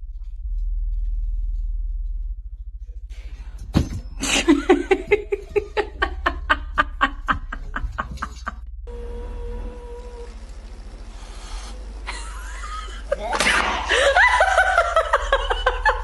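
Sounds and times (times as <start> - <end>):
low steady hum: 0.0 - 16.0
person laughing hard: 4.2 - 8.6, 12.1 - 16.0.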